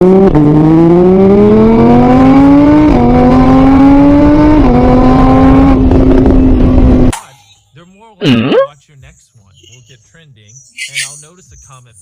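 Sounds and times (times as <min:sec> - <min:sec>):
engine accelerating through gears: 0:00.0 - 0:07.1.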